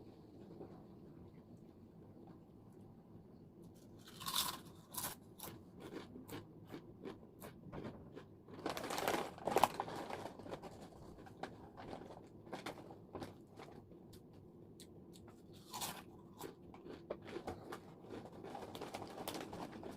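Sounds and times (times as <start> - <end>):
chips being chewed crunchily: 4.0 - 13.8, 15.2 - 19.9.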